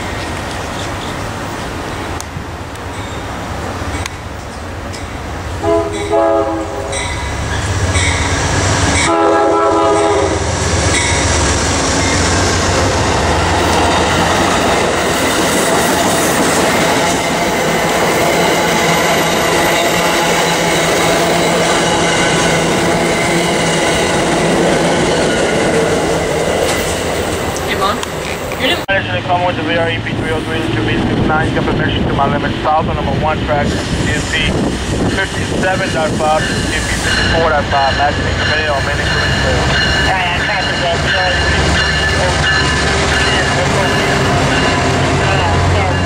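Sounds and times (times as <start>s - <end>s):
train passing at speed: 0.0s - 46.0s
train horn blasts: 5.6s - 7.2s, 9.0s - 10.5s.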